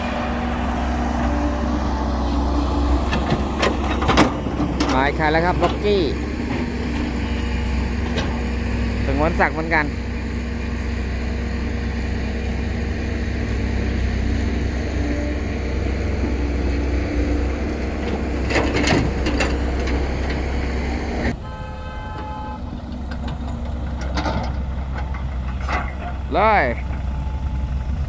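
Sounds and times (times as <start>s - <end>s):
truck diesel engine rumbling: 0.0s - 28.0s
vehicle horn: 19.0s - 22.9s.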